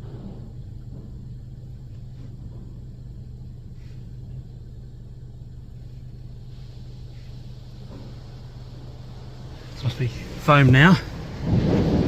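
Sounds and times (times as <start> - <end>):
car cabin hum and rumble: 0.0 - 12.0
water spray hissing on car: 5.7 - 12.0.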